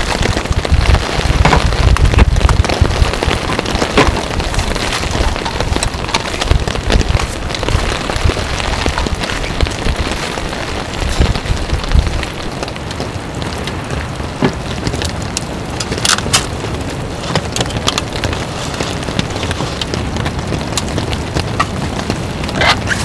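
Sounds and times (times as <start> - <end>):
low thuds and rumble: 0.0 - 15.8
rain falling: 0.0 - 23.0.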